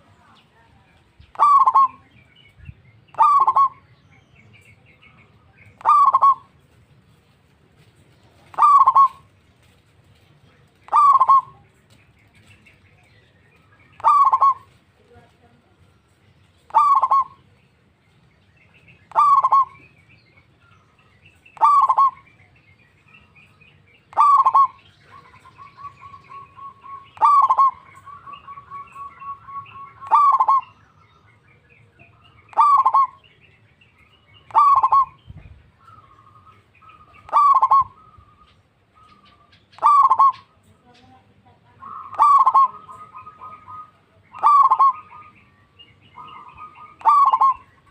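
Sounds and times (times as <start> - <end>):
dove calling: 0.0 - 47.9
rapid trilling coos: 25.4 - 30.7, 34.5 - 35.2, 37.0 - 38.0, 39.1 - 40.5, 41.8 - 45.3, 46.2 - 47.9.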